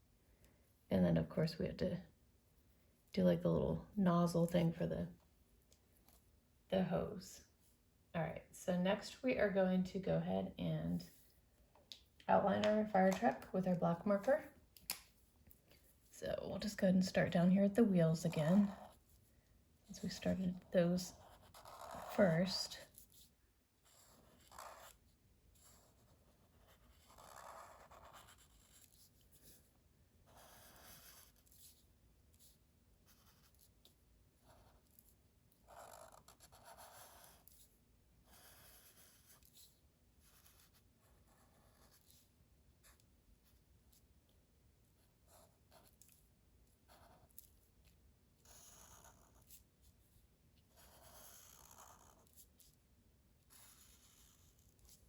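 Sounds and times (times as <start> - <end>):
marker squeaking on paper: 20.0 - 22.4, 48.4 - 49.6, 50.8 - 52.4.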